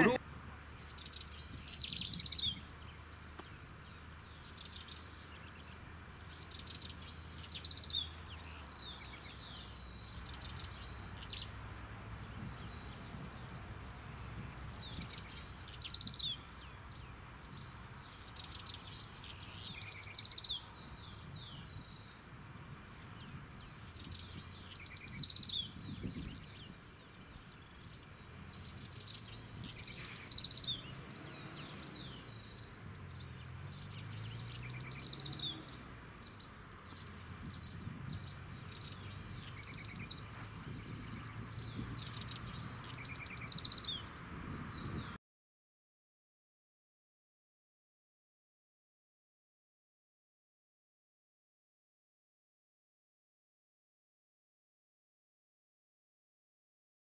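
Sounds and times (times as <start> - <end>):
birds singing: 0.0 - 45.2.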